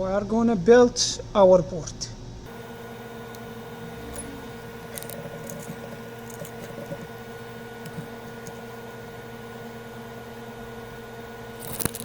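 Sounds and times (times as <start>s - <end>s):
steady electrical hum: 0.0s - 12.0s
small tools clicking and scraping: 3.3s - 7.2s, 7.8s - 8.7s, 11.6s - 12.0s.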